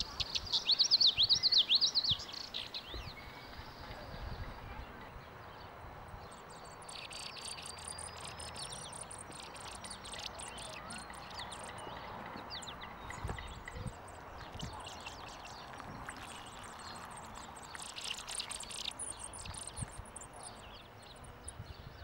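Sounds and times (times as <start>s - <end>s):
soft outdoor hiss: 0.0s - 22.0s
songbirds chirping: 0.0s - 22.0s.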